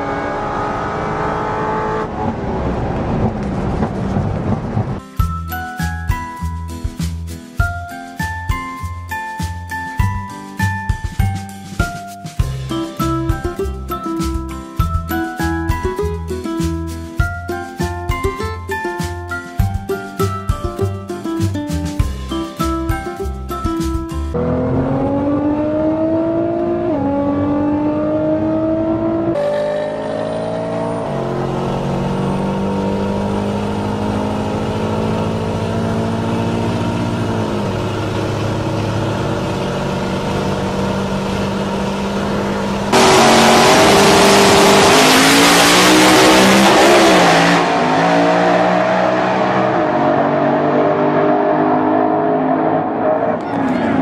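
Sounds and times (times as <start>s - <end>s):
car engine accelerating hard: 0.0s - 5.0s, 24.4s - 54.0s
harsh car engine at full throttle: 0.0s - 5.0s, 24.3s - 54.0s.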